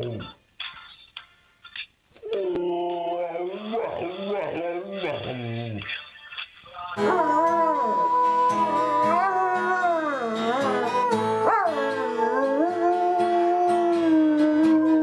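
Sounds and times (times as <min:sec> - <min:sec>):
dog howling: 0:07.0 - 0:15.0
instrumental music: 0:07.0 - 0:15.0.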